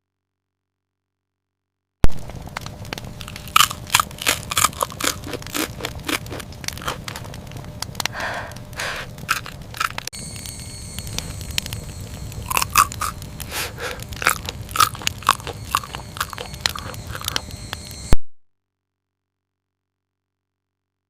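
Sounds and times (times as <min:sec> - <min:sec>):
crunching and crackling: 0:02.0 - 0:18.2.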